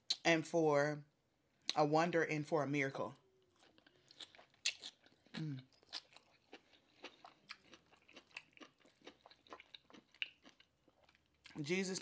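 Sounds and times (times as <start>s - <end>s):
chewing with crunches: 3.4s - 11.6s
wet mouth clicks: 3.7s - 6.3s
person humming mm: 5.4s - 5.6s.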